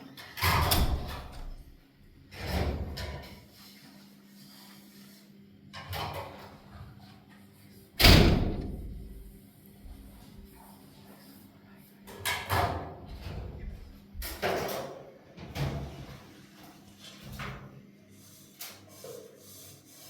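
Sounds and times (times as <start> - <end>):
sudden bangs: 8.0 - 9.2.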